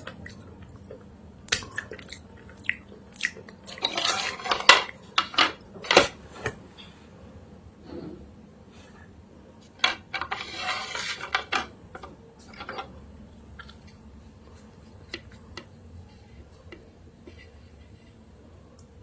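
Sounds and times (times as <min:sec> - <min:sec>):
crunchy scrapes in clay pot: 0:03.7 - 0:04.8, 0:10.2 - 0:11.5.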